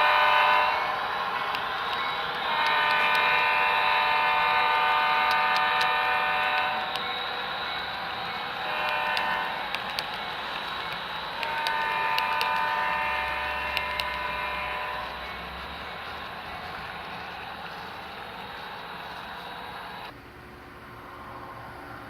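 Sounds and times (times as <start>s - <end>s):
model train air horn blasts: 0.0s - 17.0s
wheels clicking on model track: 0.0s - 20.1s.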